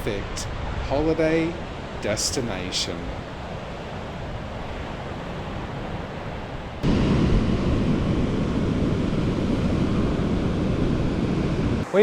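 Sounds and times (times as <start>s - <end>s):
ocean surf: 0.0s - 12.0s
wind buffeting microphone: 3.0s - 11.9s.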